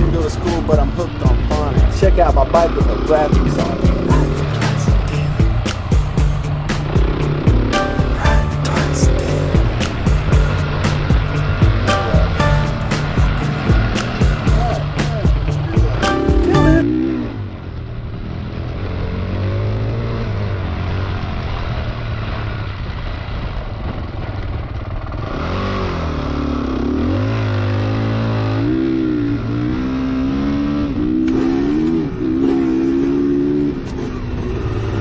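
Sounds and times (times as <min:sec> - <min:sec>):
motorcycle engine revving: 0:00.0 - 0:16.1, 0:24.3 - 0:35.0.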